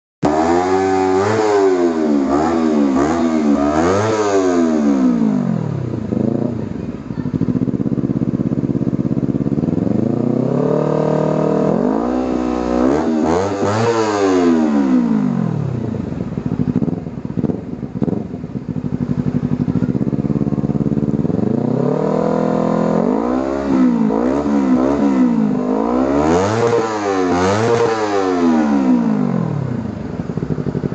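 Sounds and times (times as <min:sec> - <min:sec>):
motorcycle engine revving: 0:00.2 - 0:30.9.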